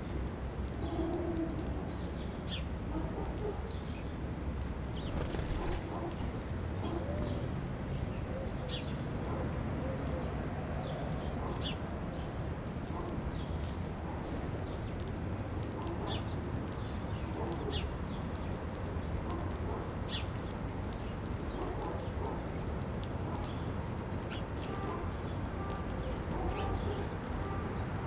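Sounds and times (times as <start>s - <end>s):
small birds chirping: 3.6s - 7.4s.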